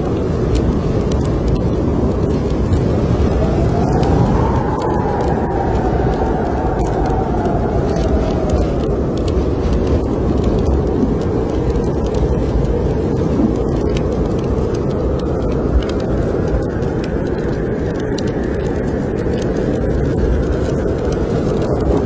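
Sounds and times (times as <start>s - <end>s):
snowstorm wind blowing: 0.0s - 22.0s
wood fire crackling: 0.0s - 22.0s.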